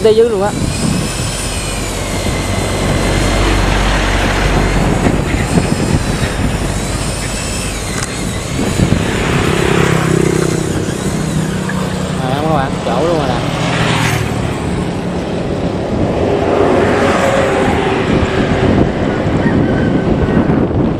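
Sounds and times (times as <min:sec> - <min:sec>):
high wavering whine: 0:00.0 - 0:20.9
machinery rumble: 0:00.0 - 0:20.9
low pitched hum: 0:00.6 - 0:16.8.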